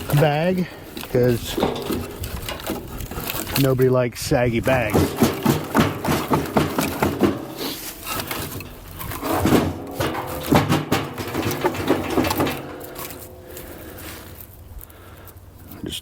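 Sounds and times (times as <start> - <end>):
firewood pieces knocking: 0.0 - 15.2
bag rustling: 11.2 - 15.6.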